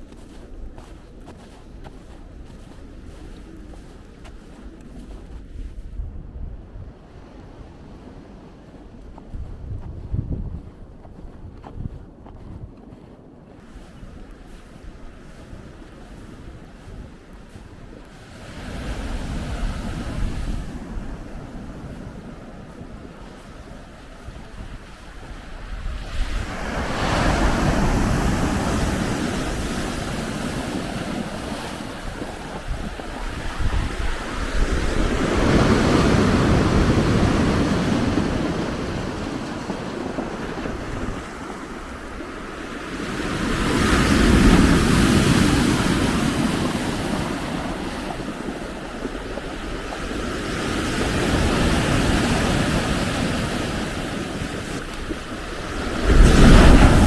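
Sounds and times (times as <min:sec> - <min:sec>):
blizzard wind: 0:00.0 - 0:57.0
wind rumbling on microphone: 0:00.0 - 0:57.0
waves breaking on shore: 0:13.6 - 0:57.0.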